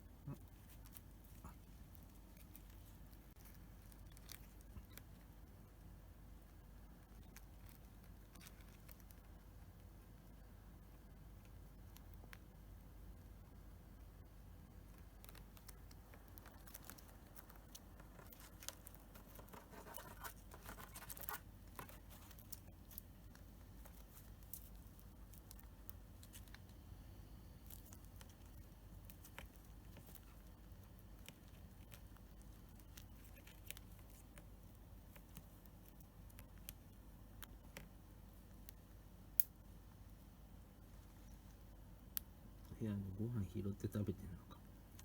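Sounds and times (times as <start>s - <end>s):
bird nibbling and chewing: 0.3s - 42.5s.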